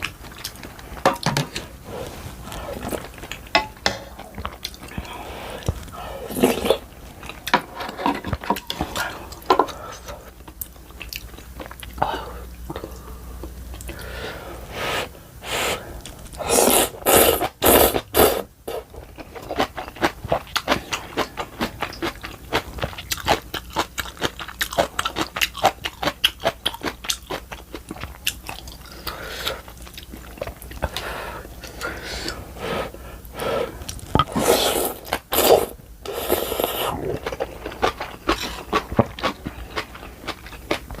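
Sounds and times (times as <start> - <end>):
wet chewing and crunching: 18.8 - 31.0, 33.8 - 41.0.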